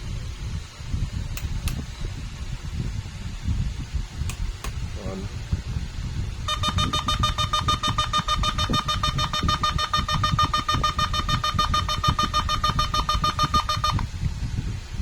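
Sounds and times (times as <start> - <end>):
electronic warning beeps: 6.5 - 14.0.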